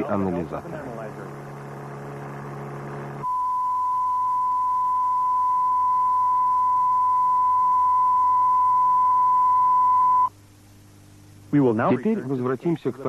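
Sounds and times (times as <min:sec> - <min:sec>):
low buzzing hum: 0:00.0 - 0:13.0
pure test tone: 0:00.9 - 0:10.3.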